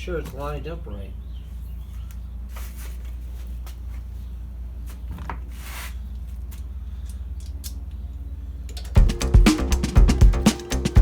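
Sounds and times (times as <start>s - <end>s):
steady low hum: 6.0s - 11.0s.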